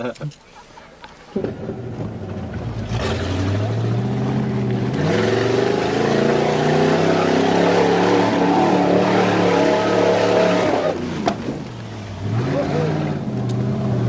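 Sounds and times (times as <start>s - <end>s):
engine revving: 1.4s - 14.0s.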